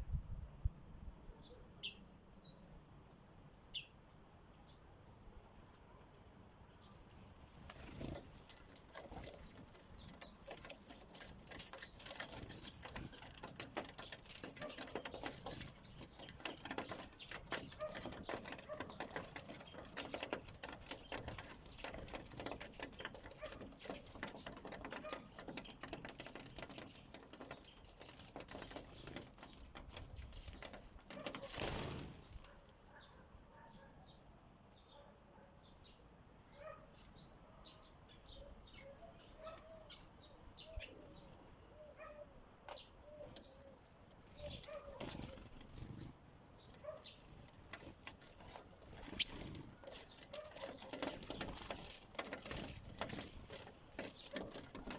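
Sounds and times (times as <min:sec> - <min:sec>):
wing flutters: 0:07.3 - 0:32.7, 0:44.3 - 0:54.9.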